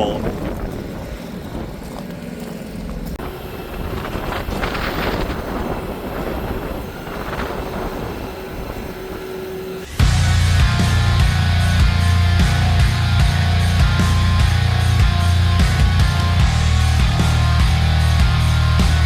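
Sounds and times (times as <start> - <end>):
forklift engine running: 0.0 - 19.0
heavy rock music: 9.8 - 19.0.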